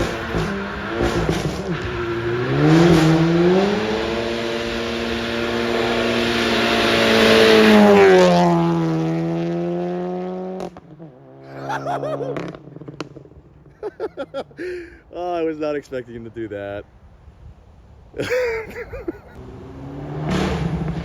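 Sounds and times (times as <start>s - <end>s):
car engine revving high: 0.0s - 13.3s, 19.4s - 21.0s.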